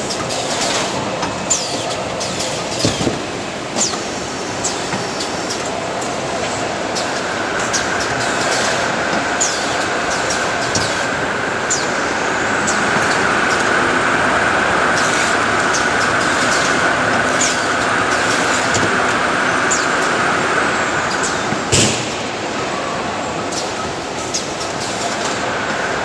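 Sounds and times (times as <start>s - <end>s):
loud burst of noise: 0.0s - 26.0s
machinery din with whine: 0.0s - 26.0s.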